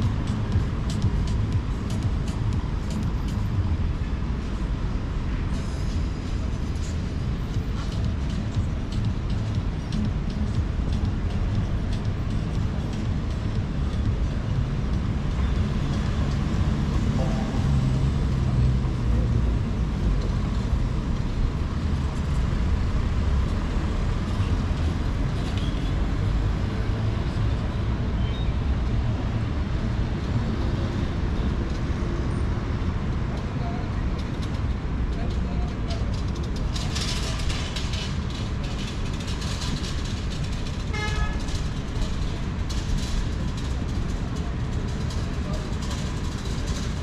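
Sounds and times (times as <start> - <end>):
traffic rumble: 0.0 - 47.0.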